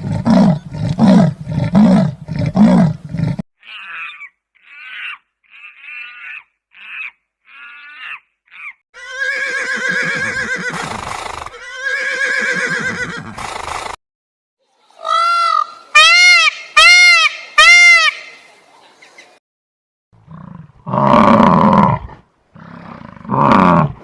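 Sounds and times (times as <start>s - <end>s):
animal call arching up and down: 3.6s - 14.0s
horse whinnying: 9.0s - 14.0s.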